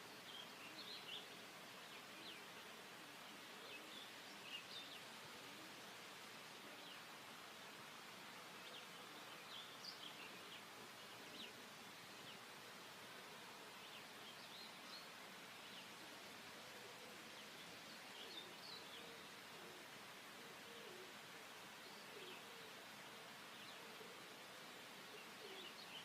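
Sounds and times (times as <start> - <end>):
small birds chirping: 0.0 - 7.2, 8.2 - 26.0
steady low hiss: 0.0 - 26.0.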